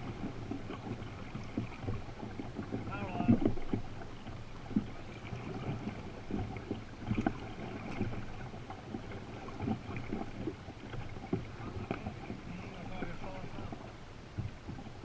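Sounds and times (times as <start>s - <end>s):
canoe knocks: 0.0s - 15.0s
water splashing and sloshing: 0.0s - 15.0s.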